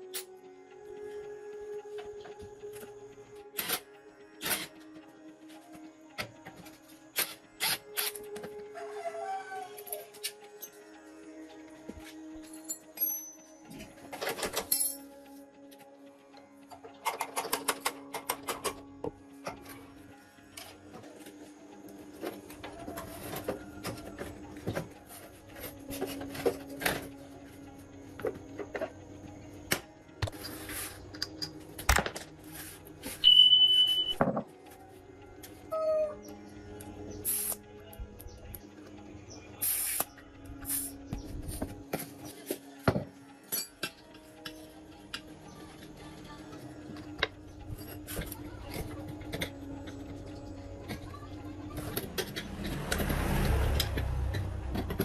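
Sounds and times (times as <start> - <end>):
faint background music: 0.0 - 55.0
metal tools clinking: 14.3 - 15.3
hand tools clicking and knocking: 16.7 - 19.7, 51.8 - 55.0
hissing spray: 39.6 - 40.9.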